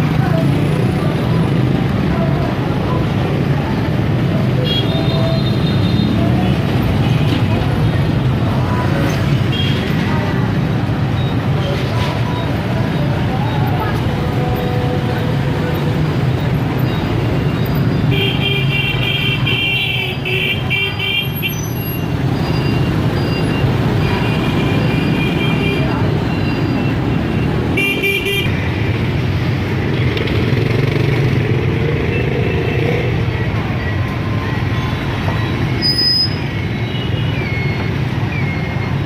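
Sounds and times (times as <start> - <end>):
motorbike engines running: 0.0 - 19.0, 20.6 - 39.0
horns beeping: 12.4 - 28.6.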